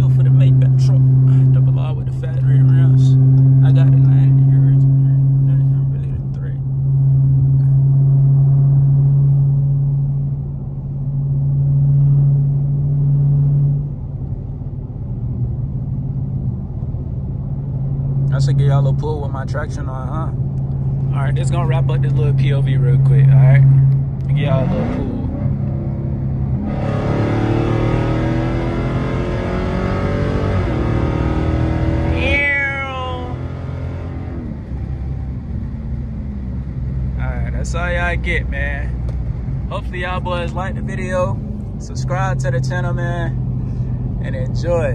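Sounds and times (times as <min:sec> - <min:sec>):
car engine droning while cruising: 0:00.0 - 0:44.9.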